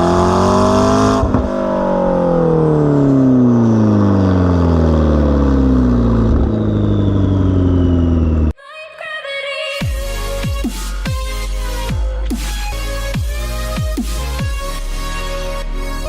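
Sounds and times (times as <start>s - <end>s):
car engine revs winding down: 0.0s - 8.5s.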